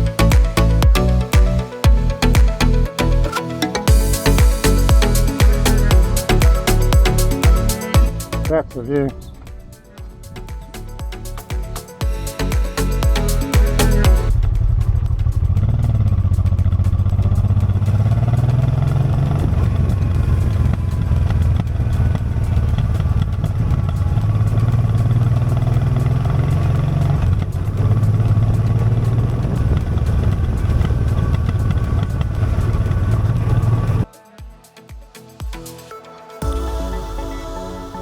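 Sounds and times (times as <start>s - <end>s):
motorcycle engine revving: 12.9s - 34.1s.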